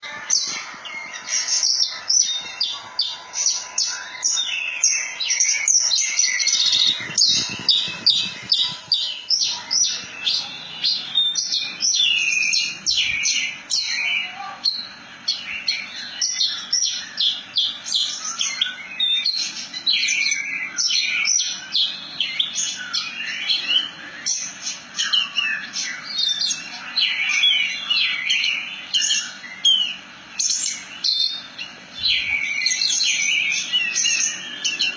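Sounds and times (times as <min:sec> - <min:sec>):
lark singing chirps and trills: 0:00.0 - 0:34.9.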